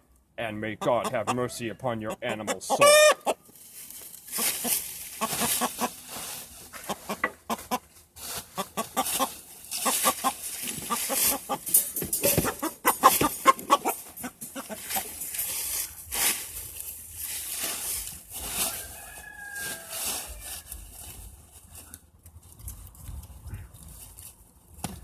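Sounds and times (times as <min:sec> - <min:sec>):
rooster clucking and squawking: 0:00.7 - 0:03.5, 0:04.3 - 0:06.1, 0:06.7 - 0:16.0, 0:18.4 - 0:20.8.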